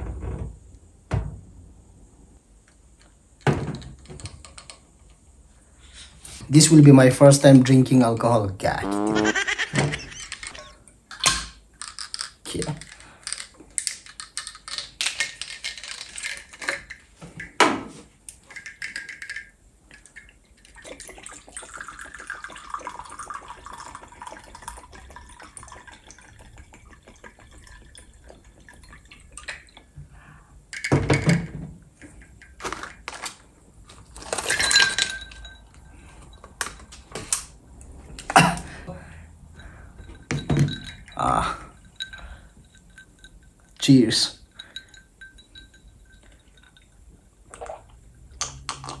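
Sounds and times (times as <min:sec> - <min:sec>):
whisky pouring into glass: 0:18.6 - 0:29.8.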